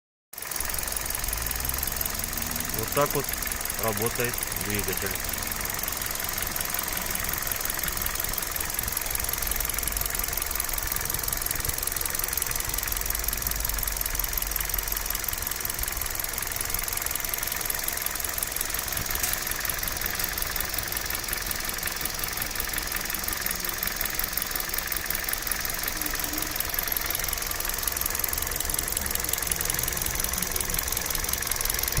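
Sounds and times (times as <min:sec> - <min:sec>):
car engine running: 0:00.4 - 0:32.0
engine ticking clatter: 0:00.4 - 0:32.0.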